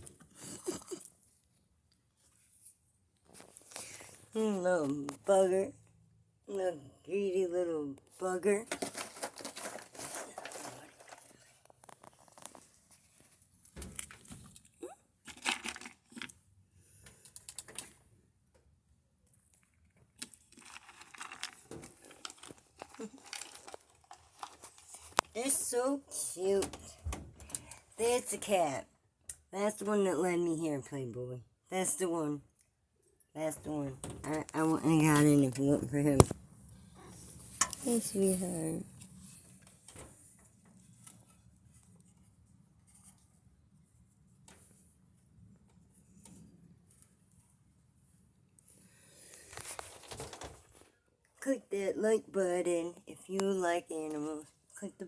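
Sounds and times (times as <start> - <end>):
squirrel chewing peanuts: 10.4 - 18.3, 19.2 - 26.6.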